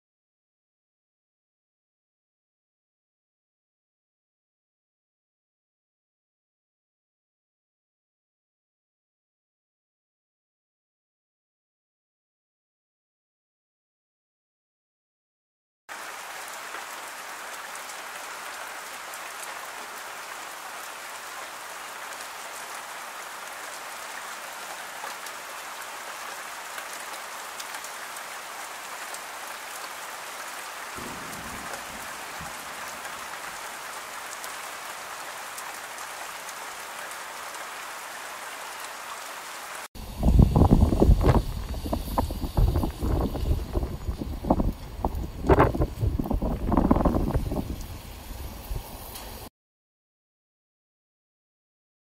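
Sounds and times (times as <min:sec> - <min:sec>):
rain falling on foliage: 0:15.9 - 0:49.5.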